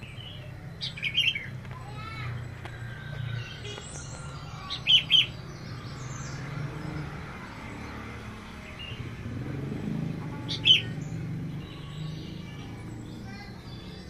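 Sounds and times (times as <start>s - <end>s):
small bird chirping: 0.0s - 14.0s.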